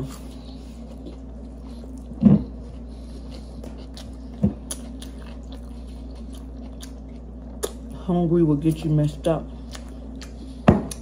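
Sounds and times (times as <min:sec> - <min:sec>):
chewing sandwich: 0:00.0 - 0:08.0
low hum: 0:00.0 - 0:11.0.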